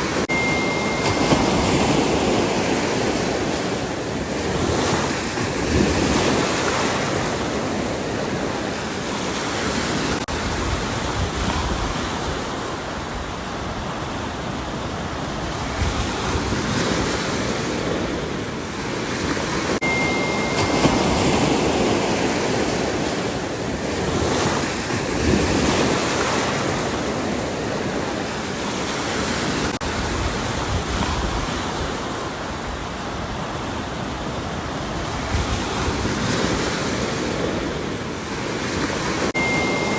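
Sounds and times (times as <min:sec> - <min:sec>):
ocean waves breaking on shore: 0:00.0 - 0:39.9
wind buffeting microphone: 0:00.0 - 0:39.9.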